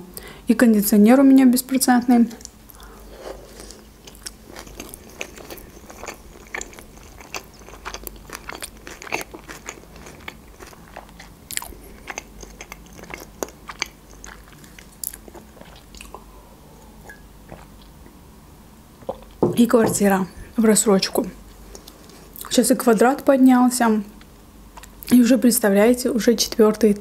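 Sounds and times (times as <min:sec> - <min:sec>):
person chewing crunchy food: 0:02.4 - 0:16.4, 0:17.0 - 0:18.1.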